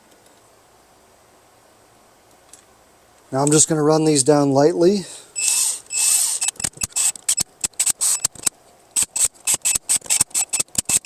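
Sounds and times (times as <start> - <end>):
ratchet wrench clicks: 5.4 - 11.0
ratchet wrench spinning: 5.4 - 11.0.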